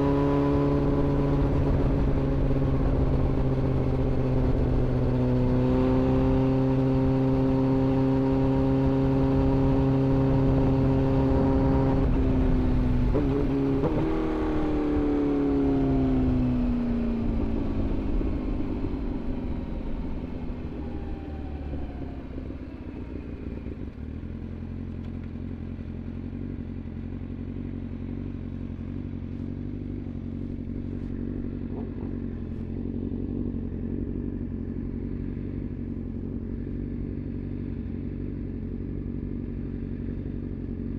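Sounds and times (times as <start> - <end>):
motorcycle engine revving and idling: 0.0 - 40.9.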